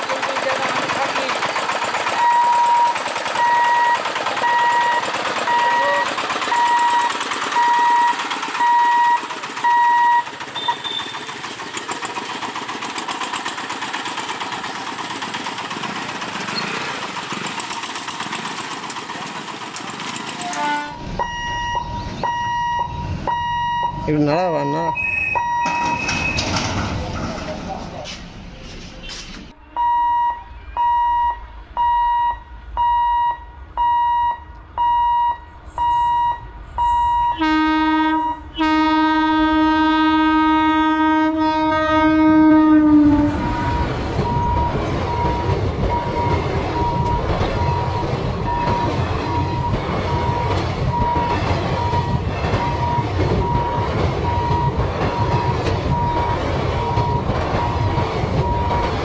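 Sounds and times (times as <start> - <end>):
train rumbling and clattering: 0.0 - 29.6, 30.4 - 59.0
warning tone beeping: 2.2 - 11.1, 21.1 - 26.4, 29.7 - 37.4
locomotive horn blast: 20.4 - 21.2, 36.8 - 44.1.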